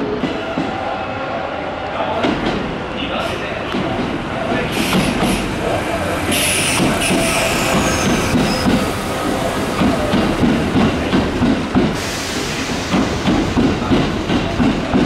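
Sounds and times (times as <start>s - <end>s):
train wheels clattering over rail joints: 3.7s - 5.5s, 12.8s - 15.0s.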